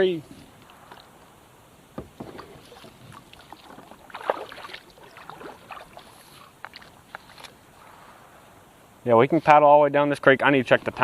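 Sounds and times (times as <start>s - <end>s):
water splashing: 0.0s - 8.7s
kayak knocking: 1.9s - 5.8s.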